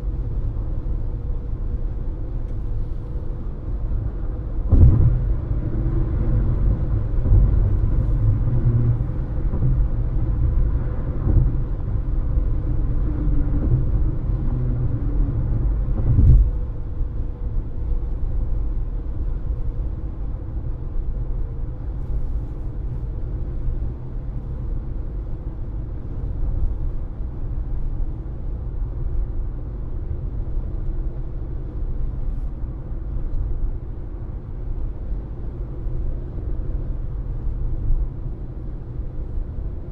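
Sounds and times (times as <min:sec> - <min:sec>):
car road and tyre rumble: 0:00.0 - 0:39.9
thump: 0:04.7 - 0:05.2.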